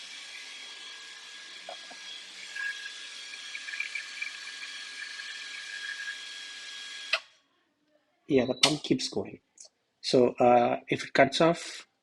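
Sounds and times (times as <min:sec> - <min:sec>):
pump whining and hissing: 0:00.0 - 0:07.2.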